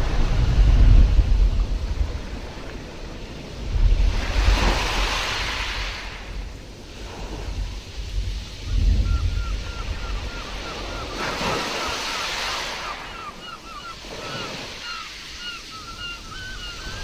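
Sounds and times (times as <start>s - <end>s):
wave washing in: 0.0s - 15.8s
ocean surf: 0.0s - 17.0s
wind: 0.0s - 17.0s.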